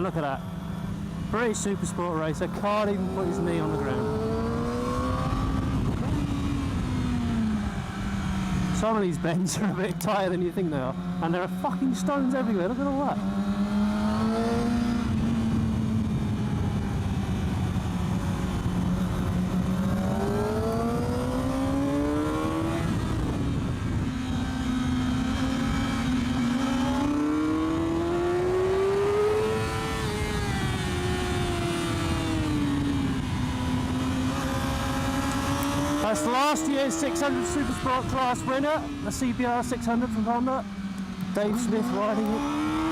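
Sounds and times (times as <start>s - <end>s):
motorcycle engine revving: 0.0s - 42.9s
wind rush: 3.0s - 8.8s, 13.7s - 28.2s.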